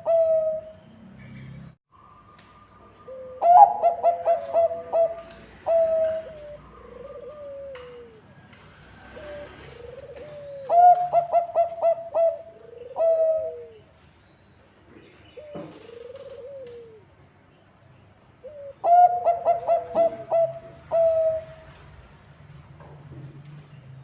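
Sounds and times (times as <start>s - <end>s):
dove cooing: 0.0s - 0.7s, 3.0s - 8.4s, 9.0s - 13.9s, 15.4s - 17.1s, 18.4s - 21.8s.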